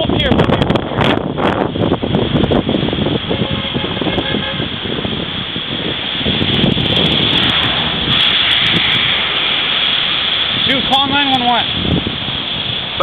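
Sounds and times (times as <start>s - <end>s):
storm wind on car and microphone: 0.0s - 13.0s
car running: 3.4s - 12.1s.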